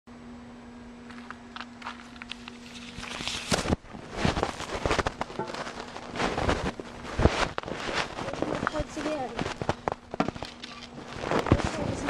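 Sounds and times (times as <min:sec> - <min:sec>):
steady hum: 0:00.1 - 0:12.0
hard objects knocking and scraping: 0:04.9 - 0:06.1.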